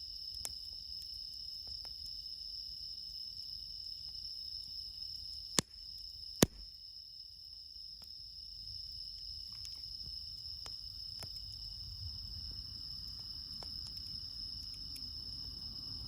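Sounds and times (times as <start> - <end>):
crickets trilling: 0.0 - 16.0
sharp cracks: 5.6 - 6.7.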